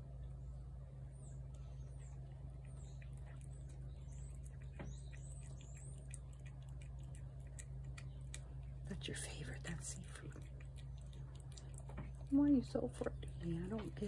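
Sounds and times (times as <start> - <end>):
steady low hum: 0.0 - 14.0
faint high bird chirps: 0.1 - 6.5.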